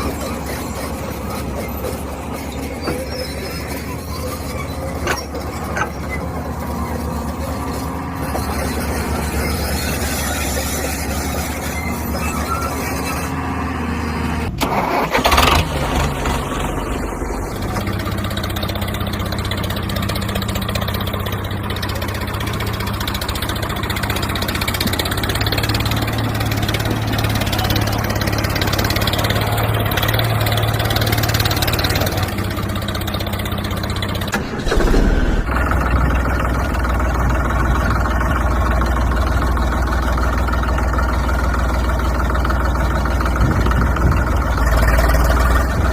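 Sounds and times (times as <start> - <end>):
engine running: 0.0 - 45.9.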